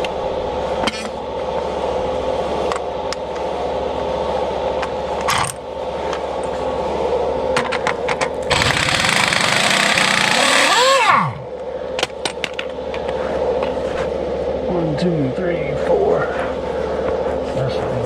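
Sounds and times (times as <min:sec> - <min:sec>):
machine hum: 0:00.0 - 0:18.0
power tool whining: 0:08.5 - 0:11.4.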